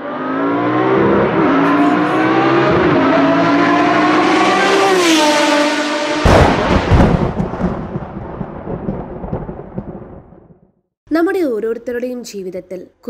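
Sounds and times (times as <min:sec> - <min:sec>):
car engine revving: 0:00.0 - 0:07.1.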